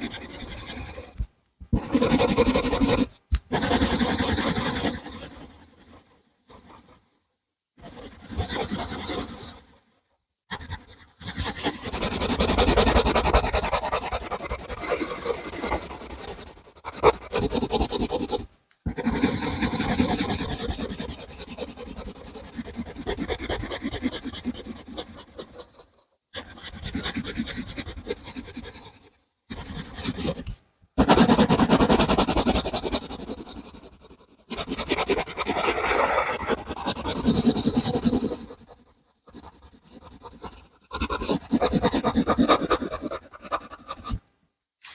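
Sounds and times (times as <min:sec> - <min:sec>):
colouring strokes on paper: 0:12.4 - 0:44.2.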